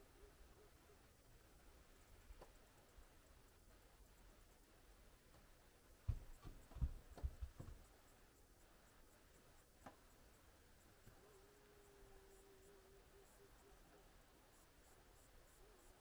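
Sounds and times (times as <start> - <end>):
faint steady hum: 0.0 - 16.0
soft low thumps: 6.0 - 8.0.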